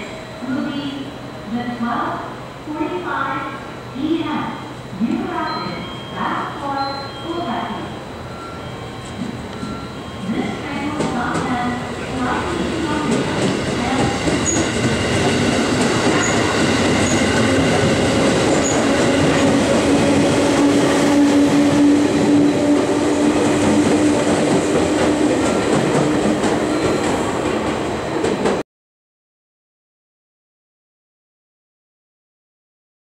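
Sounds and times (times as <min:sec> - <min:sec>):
train wheels clattering on rails: 0:10.8 - 0:28.6.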